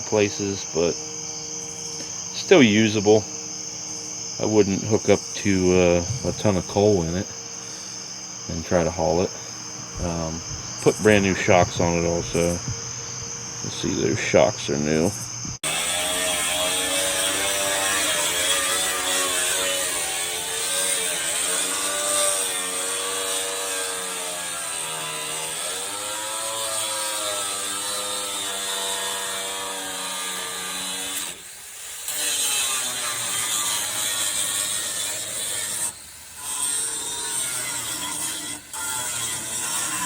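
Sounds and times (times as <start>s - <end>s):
powered ratchet tool buzzing: 14.9s - 40.0s.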